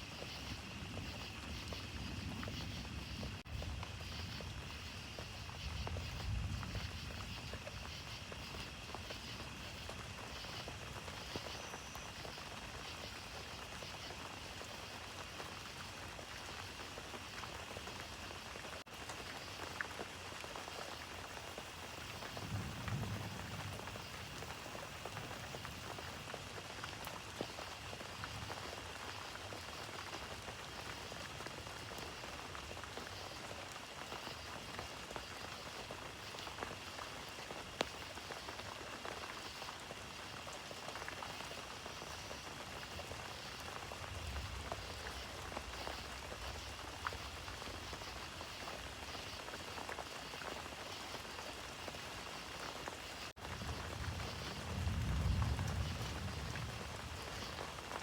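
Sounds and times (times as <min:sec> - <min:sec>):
steady rain: 0:00.0 - 0:58.0
distant thunder rumble: 0:21.9 - 0:26.2, 0:53.4 - 0:58.0.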